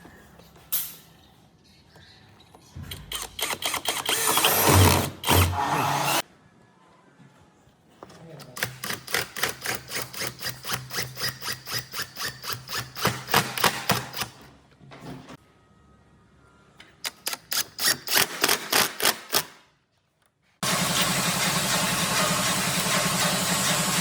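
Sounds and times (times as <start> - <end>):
machine running: 20.6 - 24.0.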